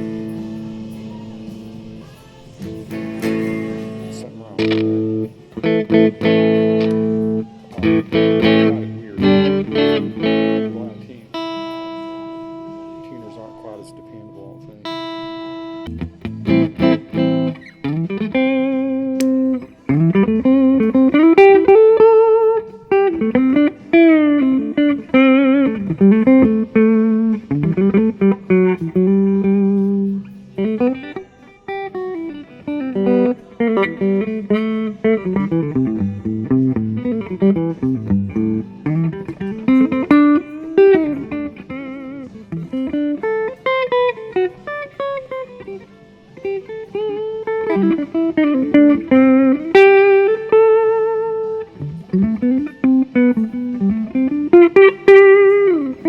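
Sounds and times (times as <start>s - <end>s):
electric guitar licks: 0.0s - 56.0s.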